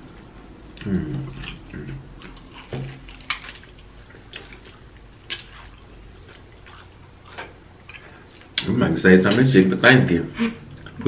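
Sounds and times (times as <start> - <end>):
low steady background noise: 0.0 - 11.0
wet chewing and lip smacking: 0.1 - 8.7.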